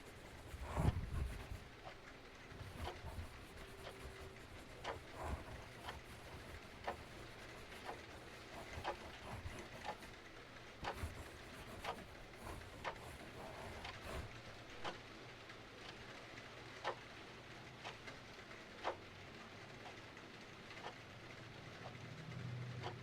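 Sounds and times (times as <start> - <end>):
clock ticking: 0.0 - 15.0.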